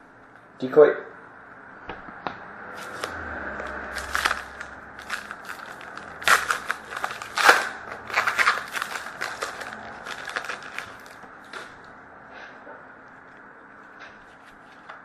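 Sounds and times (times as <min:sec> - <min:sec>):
card pack wrapper crinkling: 0:02.8 - 0:11.8.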